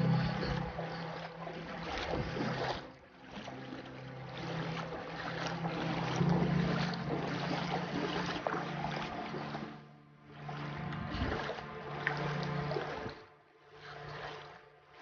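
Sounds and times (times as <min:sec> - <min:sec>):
steady low hum: 0:00.0 - 0:03.2
rushing floodwater: 0:00.0 - 0:15.0
wind on microphone: 0:10.9 - 0:11.6.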